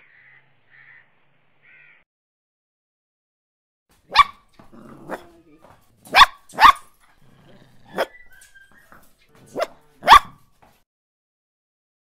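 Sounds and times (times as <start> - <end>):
puppy barking: 4.1 - 10.5.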